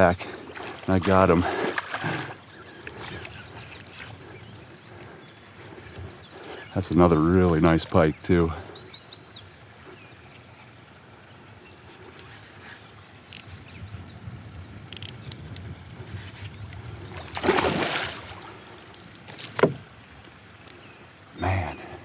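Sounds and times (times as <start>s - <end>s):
water splashing: 0.0s - 4.2s, 17.2s - 20.0s
small birds chirping: 0.0s - 22.0s.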